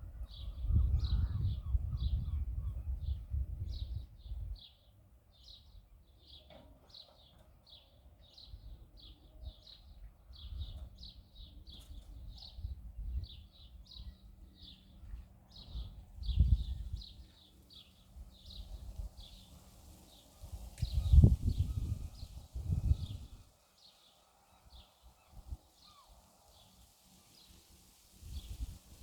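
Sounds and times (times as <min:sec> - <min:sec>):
wind rumble on microphone: 0:00.0 - 0:04.7, 0:08.6 - 0:17.3, 0:20.1 - 0:23.5, 0:28.2 - 0:29.0
small bird chirping: 0:24.8 - 0:27.6.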